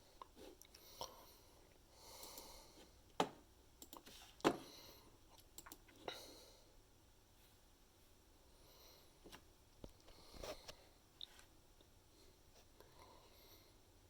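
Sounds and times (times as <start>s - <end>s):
soft breath-like noises: 0.0s - 3.1s, 4.1s - 5.4s, 6.0s - 6.9s, 8.4s - 11.4s, 12.0s - 14.0s.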